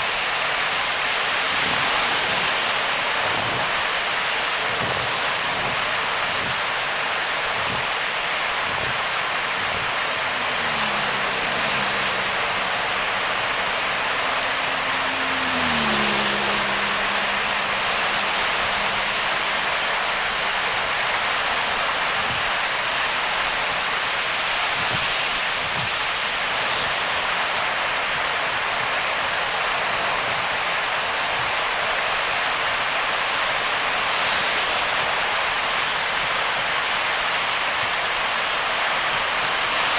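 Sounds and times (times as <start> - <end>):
heavy rain drumming on car: 0.0 - 39.9
wet tyre spray: 0.0 - 39.9
low engine tone: 7.7 - 26.5.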